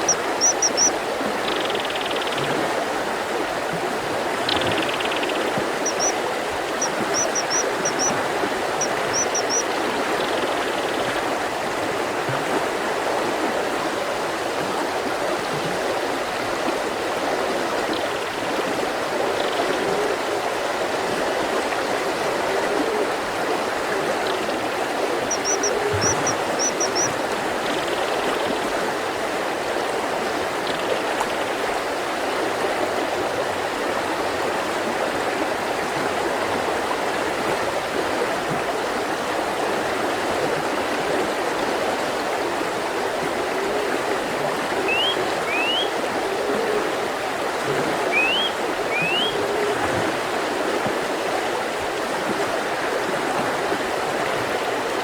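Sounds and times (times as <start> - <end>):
bird chirps: 0.0 - 0.9, 4.5 - 6.2, 6.8 - 8.1, 25.3 - 27.1, 44.9 - 45.9, 48.1 - 49.4
river flowing over rocks: 31.6 - 55.0.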